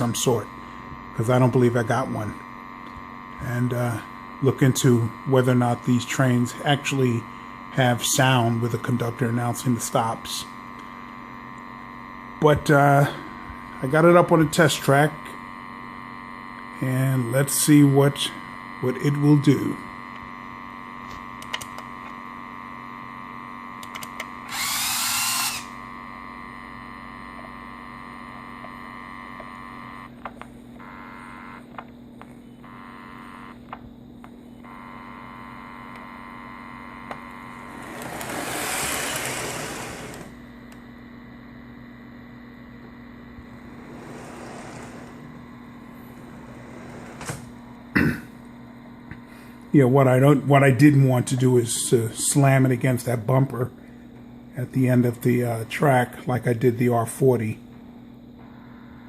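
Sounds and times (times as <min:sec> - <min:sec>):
steady electric hum: 0:00.0 - 0:59.0
toy train running on track: 0:37.8 - 0:40.2.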